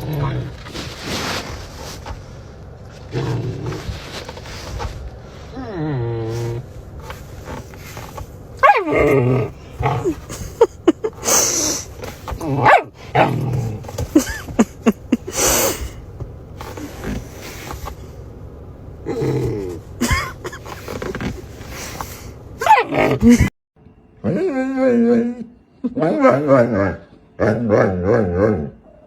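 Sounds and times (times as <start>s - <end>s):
dog whining and growling: 0.0s - 2.0s, 3.0s - 16.0s, 19.0s - 20.2s, 22.6s - 23.5s, 24.2s - 29.0s
dog barking: 8.6s - 9.1s, 12.6s - 13.4s, 22.6s - 23.2s.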